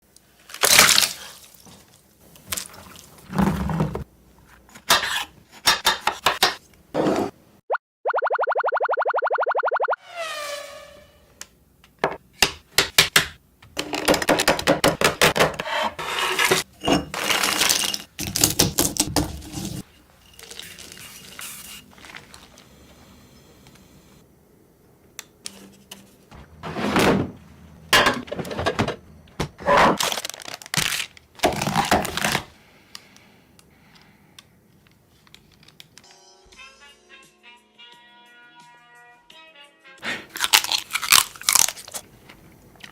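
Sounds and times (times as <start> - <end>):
falling boing sound effect: 8.0 - 10.0.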